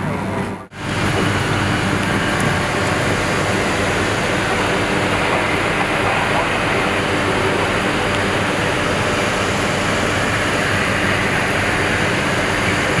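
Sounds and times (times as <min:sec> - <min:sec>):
jet aircraft rushing noise: 0:00.1 - 0:13.0.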